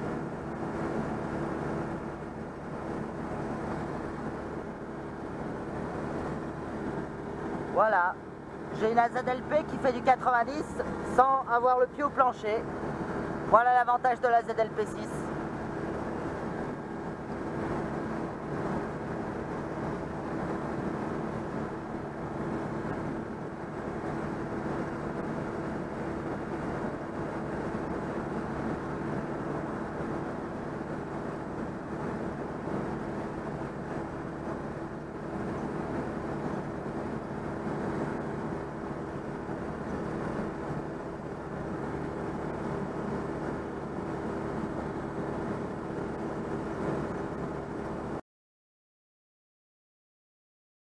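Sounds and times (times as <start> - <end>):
car engine cruising: 0.0 - 48.0
road and wind noise: 0.0 - 48.2.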